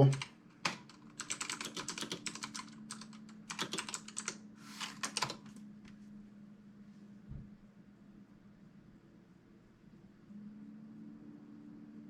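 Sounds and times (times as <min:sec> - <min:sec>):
typing on computer keyboard: 0:00.0 - 0:05.6.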